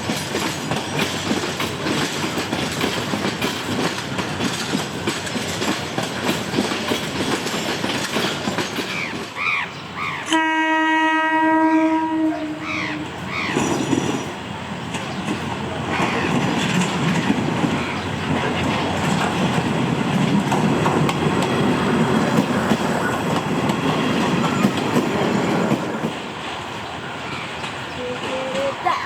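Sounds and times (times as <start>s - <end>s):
train wheels clattering over rails: 0.0s - 9.9s, 12.2s - 29.0s
train horn: 10.3s - 13.2s.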